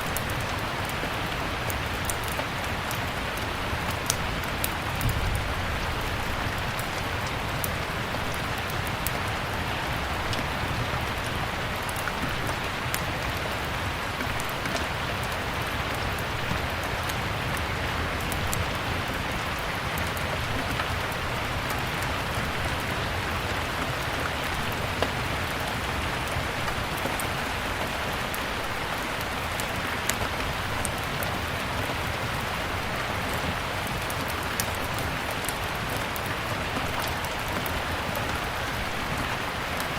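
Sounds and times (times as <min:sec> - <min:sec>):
steady rain: 0:00.0 - 0:39.9
wood fire crackling: 0:00.1 - 0:39.9.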